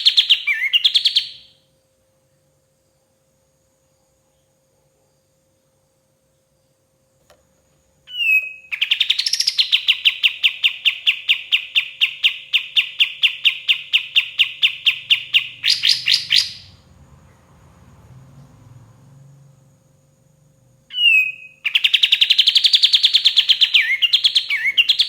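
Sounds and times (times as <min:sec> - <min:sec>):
songbird whistling and trilling: 0:00.0 - 0:01.5, 0:08.1 - 0:16.7, 0:20.9 - 0:25.0.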